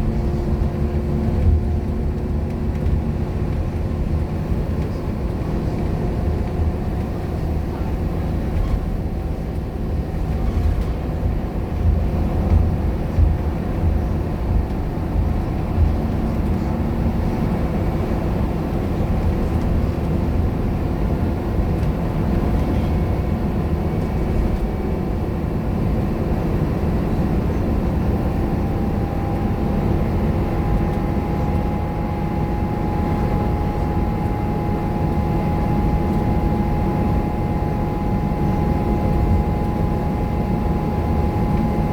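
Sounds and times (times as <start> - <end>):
bus diesel engine drone: 0.0 - 41.9
road noise: 0.0 - 41.9
steady whine: 21.3 - 41.9.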